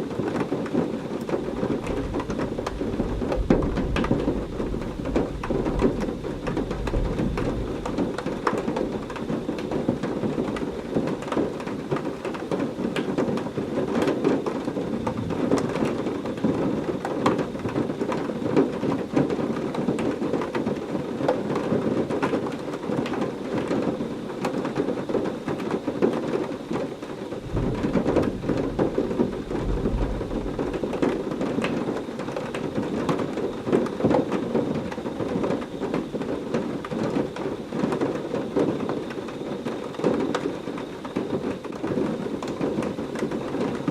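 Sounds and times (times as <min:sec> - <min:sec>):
heavy rain falling: 0:00.0 - 0:43.9
low thunder rumbling: 0:01.2 - 0:12.5, 0:14.4 - 0:18.0, 0:27.2 - 0:39.1.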